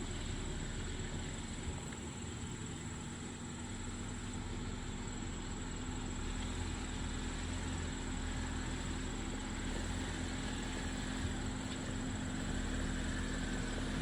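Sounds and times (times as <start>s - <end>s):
engine low rumble: 0.0s - 14.0s.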